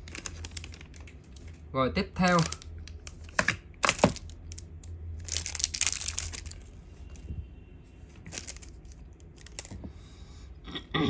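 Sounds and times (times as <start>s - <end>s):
rustling crinkling handling noise: 0.0s - 10.1s.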